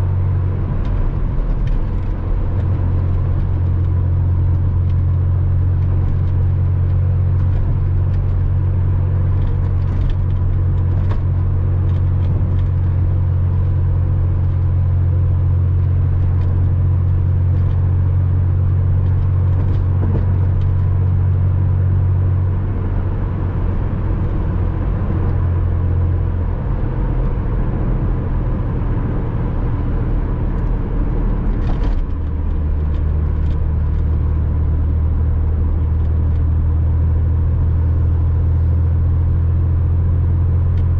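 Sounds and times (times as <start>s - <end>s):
car engine running: 0.0s - 40.9s
road noise: 0.0s - 40.9s.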